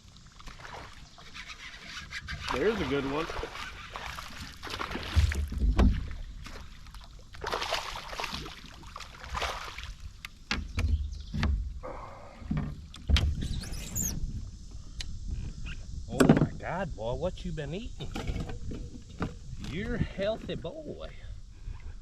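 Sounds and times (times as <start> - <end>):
water splashing: 0.0 - 10.2
knocks against a kayak hull: 5.0 - 6.2.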